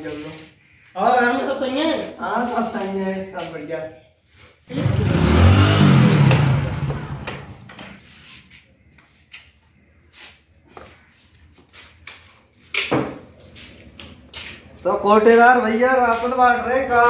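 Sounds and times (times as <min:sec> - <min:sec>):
motorcycle engine running: 0:04.7 - 0:07.7.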